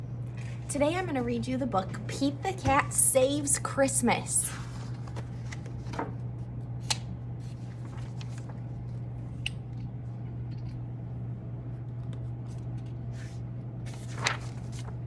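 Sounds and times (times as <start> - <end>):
low hum: 0.0 - 15.0
rustles of handling: 12.4 - 15.0.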